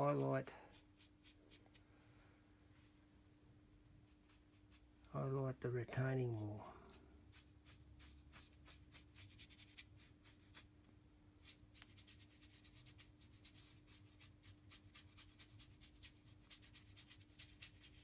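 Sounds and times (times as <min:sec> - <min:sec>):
paintbrush scratchy strokes: 0:00.0 - 0:01.9, 0:04.0 - 0:05.0, 0:06.7 - 0:10.7, 0:11.4 - 0:18.0.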